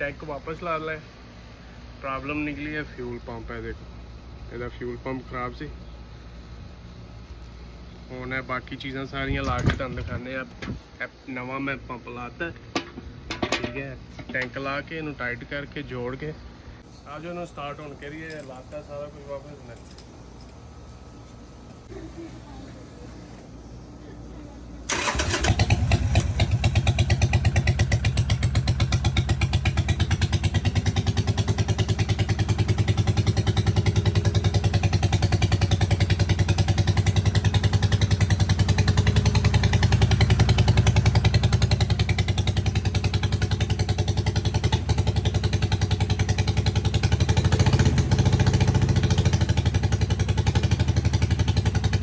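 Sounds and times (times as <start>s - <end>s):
motorcycle engine idling: 24.9s - 52.0s.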